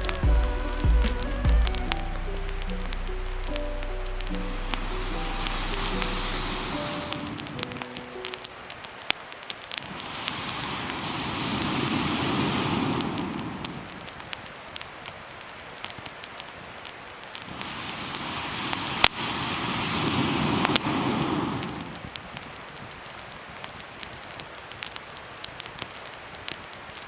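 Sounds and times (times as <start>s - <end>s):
rushing noise: 0.0s - 8.7s
wood fire crackling and popping: 0.0s - 27.0s.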